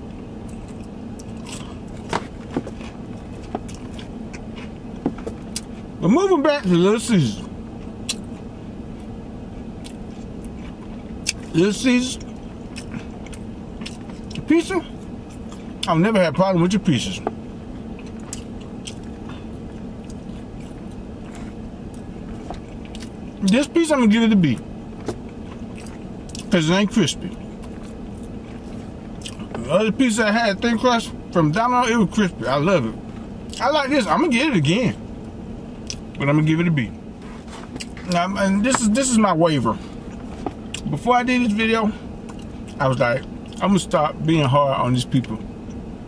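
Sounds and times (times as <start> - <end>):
person chewing pizza: 0.0 - 6.0, 7.4 - 11.6, 12.2 - 15.9, 17.2 - 23.5, 24.4 - 26.6, 27.2 - 29.7, 35.8 - 36.2, 37.2 - 39.2, 39.8 - 41.0, 42.1 - 43.6
low hum in car cabin: 0.0 - 46.0
mouth clicks and crunches: 0.4 - 5.8, 7.8 - 9.1, 9.7 - 11.6, 12.2 - 16.0, 17.9 - 23.5, 24.4 - 26.6, 27.2 - 29.7, 35.8 - 36.2, 37.2 - 38.8, 39.9 - 41.0, 42.2 - 43.7.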